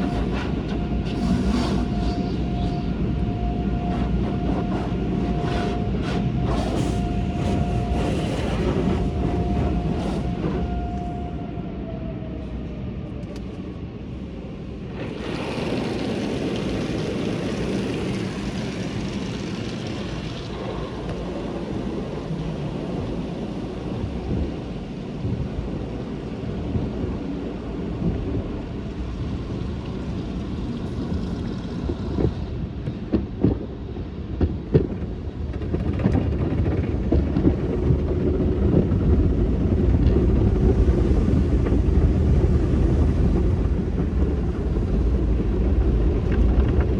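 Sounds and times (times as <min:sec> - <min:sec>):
hissing rush: 0:00.0 - 0:11.2
car wash equipment rumbling: 0:00.0 - 0:46.9.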